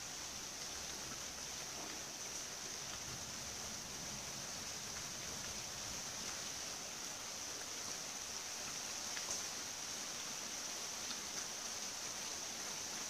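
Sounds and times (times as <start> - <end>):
rain falling steadily: 0.0 - 13.0.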